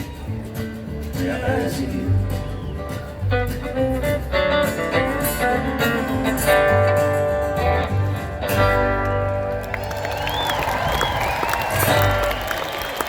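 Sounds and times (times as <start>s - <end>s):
country band playing: 0.0s - 13.0s
guitar strumming chords: 3.3s - 9.6s
crowd cheering and whistling: 9.4s - 13.0s.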